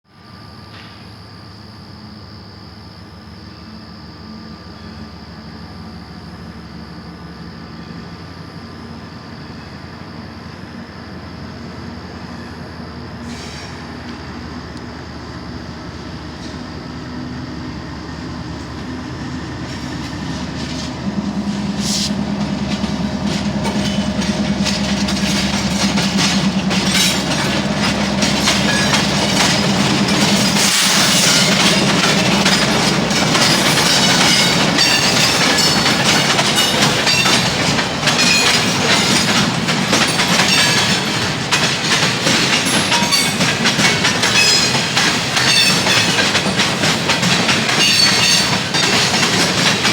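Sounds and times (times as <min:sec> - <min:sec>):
diesel locomotive hum: 0:00.2 - 0:49.9
train wheels clattering over joints: 0:18.5 - 0:49.9.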